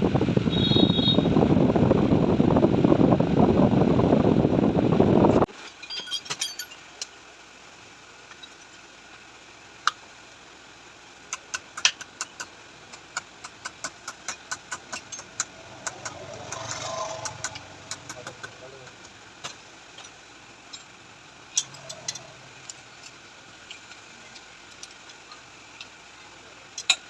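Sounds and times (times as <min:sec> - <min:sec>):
metal tools clicking and tapping: 0:05.7 - 0:07.2, 0:11.3 - 0:26.0, 0:26.7 - 0:27.0.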